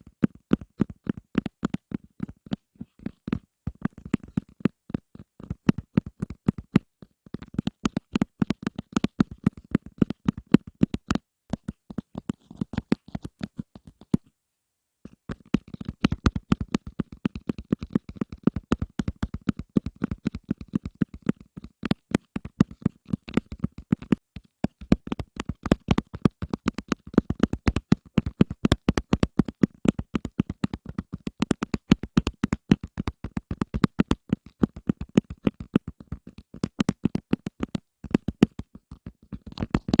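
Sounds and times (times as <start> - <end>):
quick irregular tapping: 0.0 - 14.3, 15.1 - 40.0.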